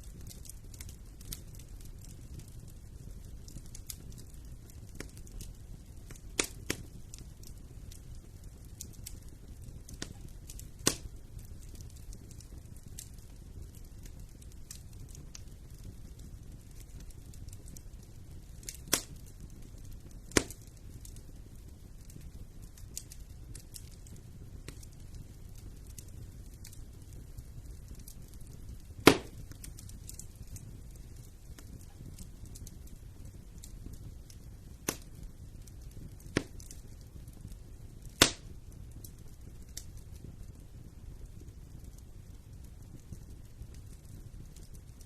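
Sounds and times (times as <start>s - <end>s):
burning logs popping: 0.0s - 45.0s
wood fire crackling: 0.0s - 45.0s
fire sharp loud pops: 6.4s - 6.8s, 9.9s - 11.1s, 18.6s - 19.2s, 20.3s - 21.2s, 29.0s - 30.2s, 34.8s - 35.1s, 36.3s - 36.8s, 38.1s - 38.5s.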